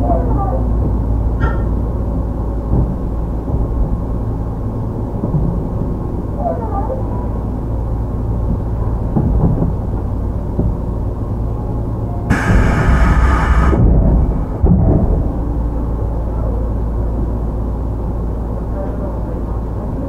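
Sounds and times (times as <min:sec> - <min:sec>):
train electrical equipment humming: 0:00.0 - 0:20.0.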